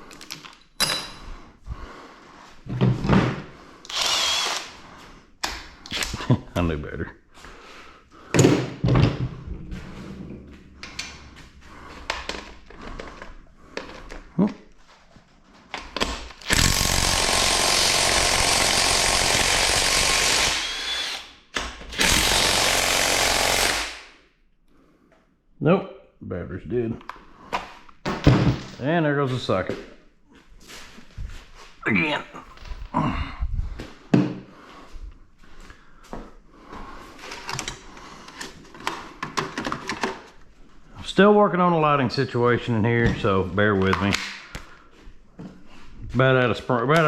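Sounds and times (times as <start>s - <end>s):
hand tools and metal parts clinking: 0.0s - 1.4s.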